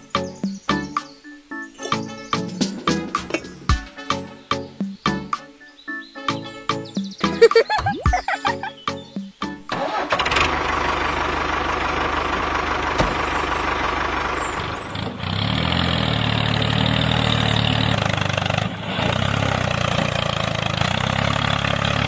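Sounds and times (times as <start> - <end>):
engine starting and running: 9.7 - 22.0.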